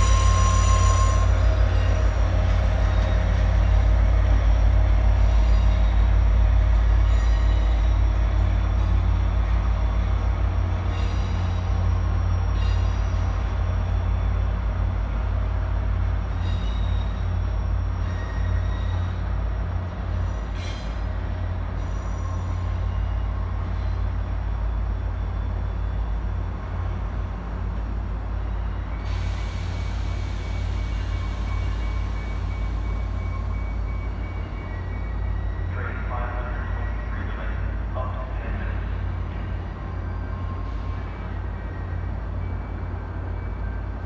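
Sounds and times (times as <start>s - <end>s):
diesel train rumbling: 0.0s - 44.0s
hiss: 29.1s - 32.6s.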